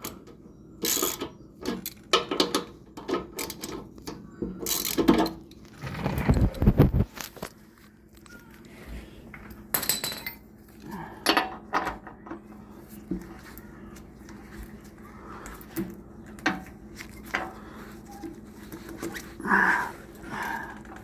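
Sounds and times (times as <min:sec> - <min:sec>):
metal tools clinking on wheel hardware: 0:00.0 - 0:05.6, 0:09.7 - 0:10.5
steady low hum: 0:03.9 - 0:21.0.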